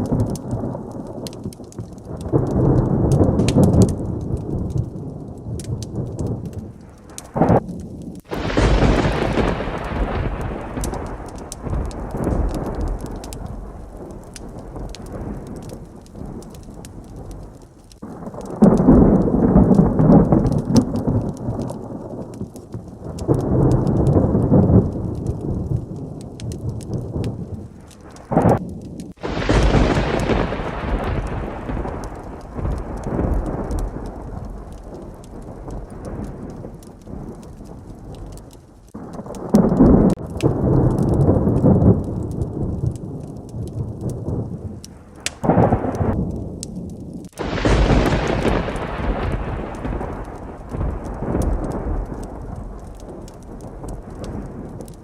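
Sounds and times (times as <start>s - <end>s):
heavy rain falling: 0.0s - 55.0s
loud thunderclap: 0.0s - 55.0s
thunder rumbling: 0.0s - 55.0s.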